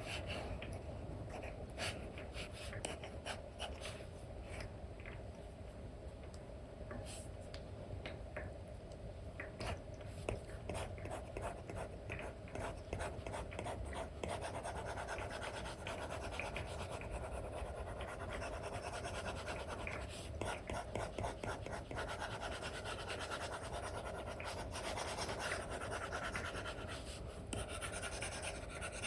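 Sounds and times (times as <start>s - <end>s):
stylus tapping and scratching on screen: 9.4s - 29.0s.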